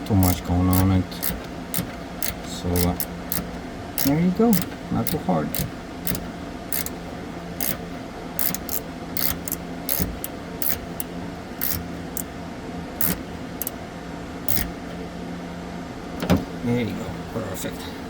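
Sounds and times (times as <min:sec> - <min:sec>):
steady low hum: 0:00.0 - 0:18.0
screwdriver clicking on sheet metal: 0:00.2 - 0:07.0, 0:07.6 - 0:12.3, 0:13.0 - 0:13.8, 0:14.5 - 0:14.8.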